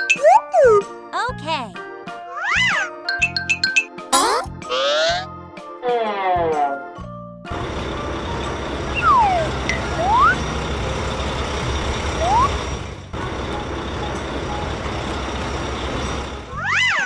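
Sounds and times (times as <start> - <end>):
cartoon truck engine rumbling: 7.5 - 17.0.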